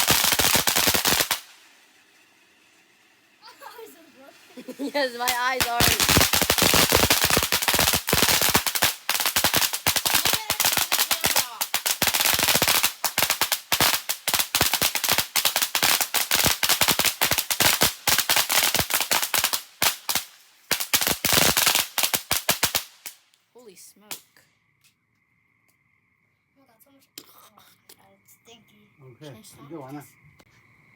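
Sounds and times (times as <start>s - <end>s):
firecrackers crackling: 0.0s - 23.4s.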